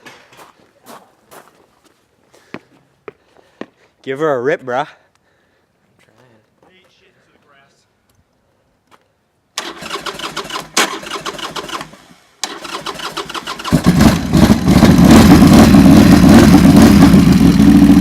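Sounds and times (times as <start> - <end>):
motorcycle engine cranking: 9.6 - 15.1
motorcycle engine running loudly: 13.6 - 18.0.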